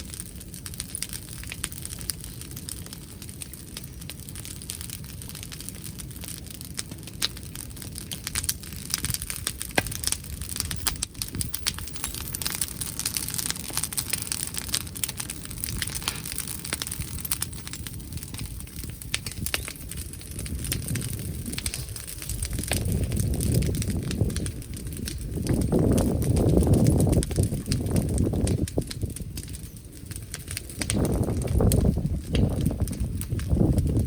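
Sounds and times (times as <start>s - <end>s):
bonfire crackling and popping: 0.0s - 34.0s
low rumble of wind: 0.0s - 34.0s.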